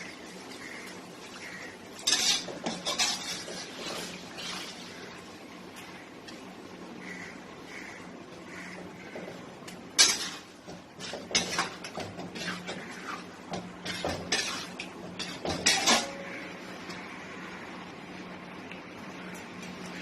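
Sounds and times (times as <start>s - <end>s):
metal utensil scraping cooking pan: 0.7s - 5.2s, 8.6s - 17.0s.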